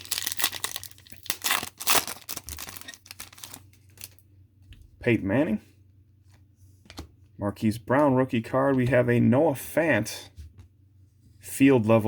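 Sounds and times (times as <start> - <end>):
trading cards rustling and scraping: 0.0 - 4.2.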